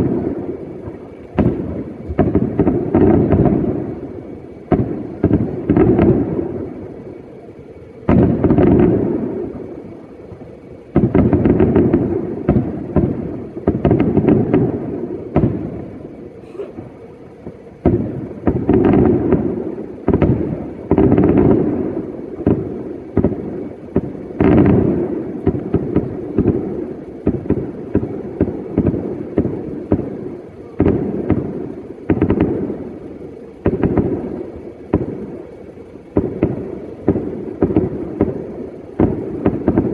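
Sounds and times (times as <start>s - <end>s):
small firework pops: 0.0s - 3.8s, 4.7s - 6.3s, 8.0s - 9.6s, 10.3s - 16.8s, 17.4s - 39.9s
firework booms: 0.0s - 39.9s.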